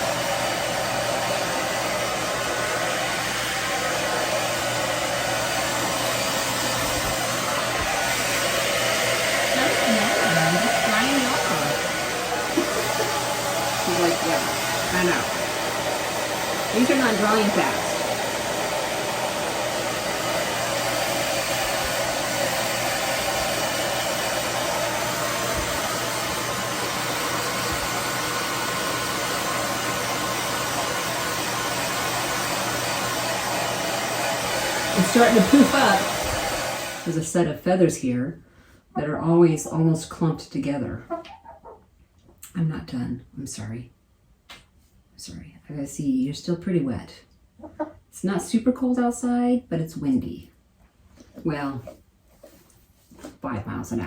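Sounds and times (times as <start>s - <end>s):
hairdryer blowing air: 0.0s - 37.6s.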